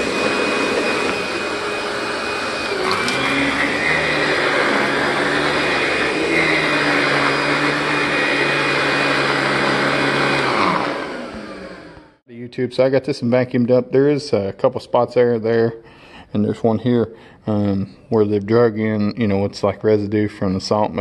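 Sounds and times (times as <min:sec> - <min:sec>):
vacuum motor winding down: 0:00.0 - 0:12.2
vacuum cleaner whining: 0:00.0 - 0:12.3.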